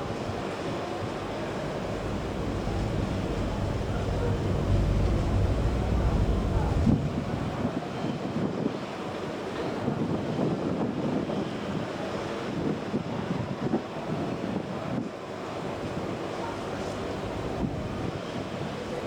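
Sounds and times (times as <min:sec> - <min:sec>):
deep boat engine rumble: 0:01.0 - 0:07.8, 0:15.9 - 0:19.0
wind buffeting microphone: 0:01.4 - 0:08.8, 0:15.8 - 0:19.0
water washing and splashing: 0:01.5 - 0:07.6.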